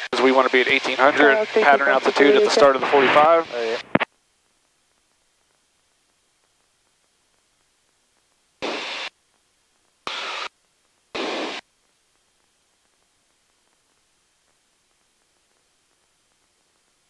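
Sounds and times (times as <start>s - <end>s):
radio static bursts with click: 0.0s - 4.1s, 8.6s - 9.1s, 10.0s - 10.5s, 11.1s - 11.6s.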